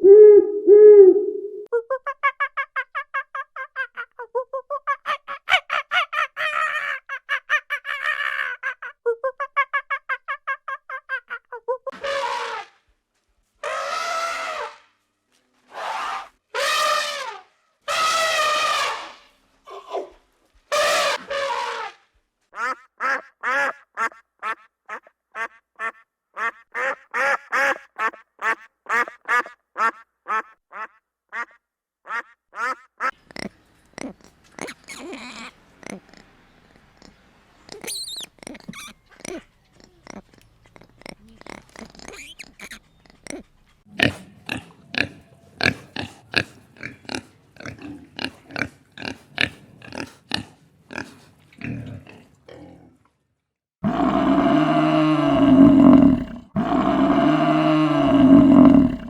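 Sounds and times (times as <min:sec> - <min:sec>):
animal calls: 0:13.6 - 0:14.9, 0:15.7 - 0:22.0, 0:32.1 - 0:45.8
duck quacking: 0:22.6 - 0:36.1.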